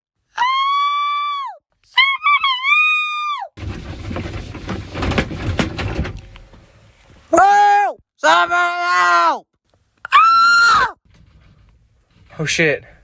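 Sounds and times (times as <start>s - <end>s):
noisy rumble with crackling: 3.6s - 7.3s
high-pitched screams: 10.1s - 11.0s.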